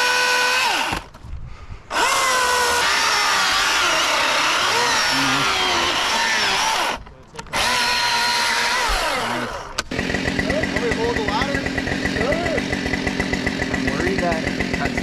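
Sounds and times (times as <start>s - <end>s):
chainsaw cutting wood: 0.0s - 1.2s, 1.9s - 15.0s.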